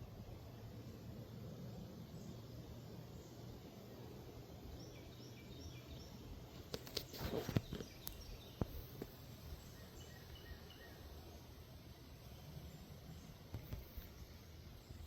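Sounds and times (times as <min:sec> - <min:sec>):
bird chirps: 0:06.8 - 0:11.6.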